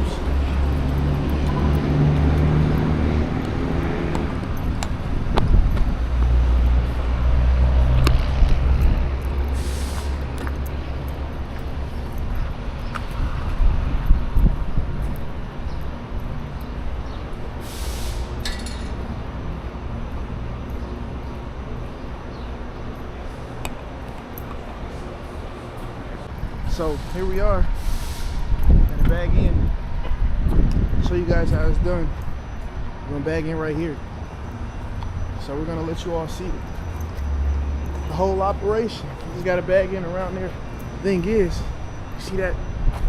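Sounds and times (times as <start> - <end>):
heavy truck engine rumbling: 0.0 - 43.0
air hiss bursts: 9.6 - 10.2, 17.6 - 18.4, 26.9 - 28.6.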